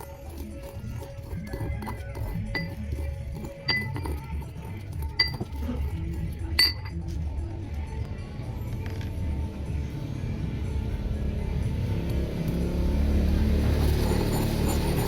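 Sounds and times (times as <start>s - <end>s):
utensil clinking on container: 0.0s - 7.2s.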